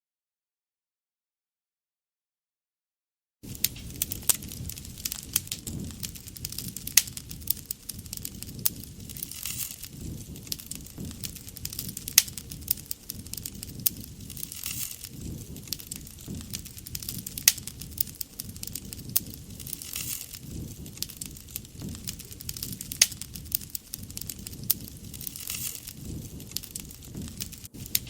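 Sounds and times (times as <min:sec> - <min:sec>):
wood fire crackling and popping: 0:03.4 - 0:28.0.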